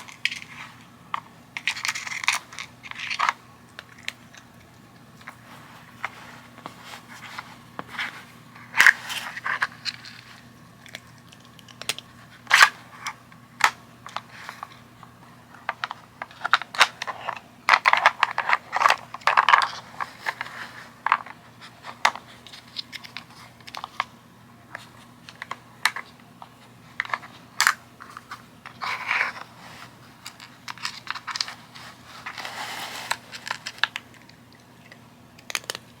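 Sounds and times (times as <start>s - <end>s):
dry kibble shifting: 0.0s - 36.0s
plastic puzzle pieces clicking: 33.3s - 35.9s.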